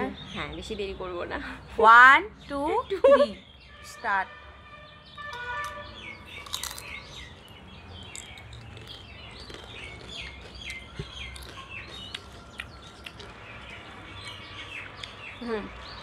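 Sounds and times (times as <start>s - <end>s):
small bird chirping: 5.6s - 16.0s
crisp crunch of chip bitten: 6.4s - 7.0s, 8.1s - 13.4s.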